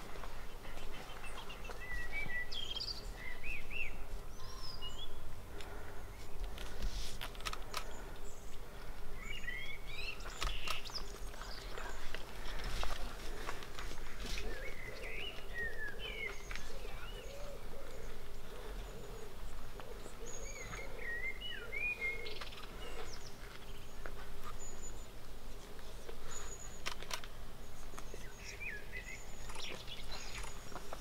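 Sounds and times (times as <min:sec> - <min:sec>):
birds singing whistled phrases: 0:00.8 - 0:05.2, 0:14.4 - 0:18.2, 0:19.9 - 0:25.1
sharp clicks: 0:06.4 - 0:08.0, 0:10.3 - 0:11.0, 0:26.8 - 0:27.4.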